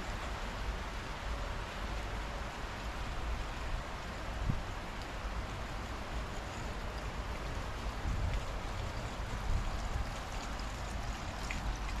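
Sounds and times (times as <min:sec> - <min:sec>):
steady rain hiss: 0:00.0 - 0:12.0
faint drip ticks: 0:04.9 - 0:12.0.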